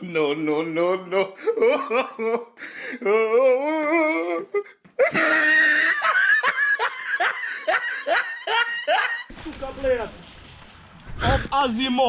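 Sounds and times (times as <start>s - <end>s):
person laughing hard: 5.0s - 9.3s.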